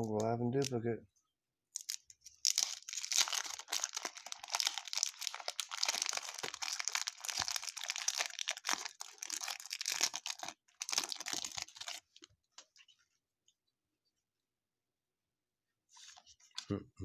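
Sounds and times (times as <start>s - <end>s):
wrapper crinkling and tearing: 1.8s - 12.3s.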